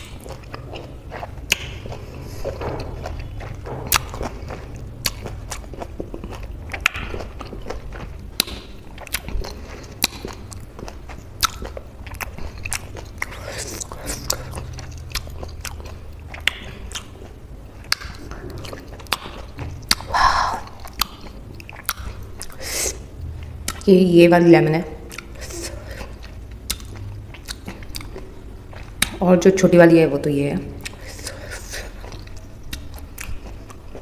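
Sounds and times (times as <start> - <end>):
chewing juicy citrus fruit: 0.0 - 24.3, 24.9 - 29.2, 30.6 - 34.0
low hum: 12.4 - 21.6.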